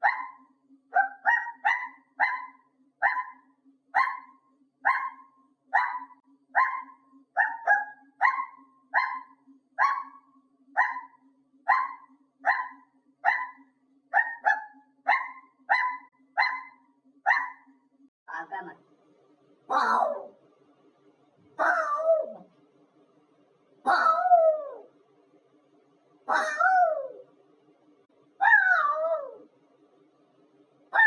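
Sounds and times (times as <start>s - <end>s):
dog-like barking: 0.0s - 17.7s, 19.7s - 20.3s, 21.6s - 22.4s, 23.9s - 24.8s, 26.3s - 27.2s.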